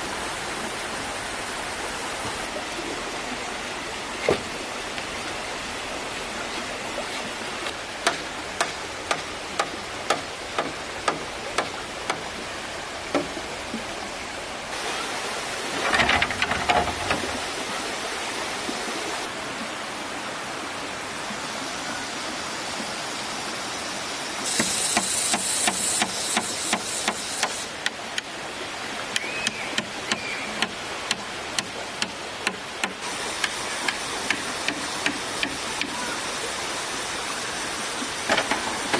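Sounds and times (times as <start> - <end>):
stream flowing: 0.0 - 38.9
wooden knocks on bamboo: 8.0 - 12.2, 13.1 - 13.4
harsh hissing scrape: 24.5 - 27.7.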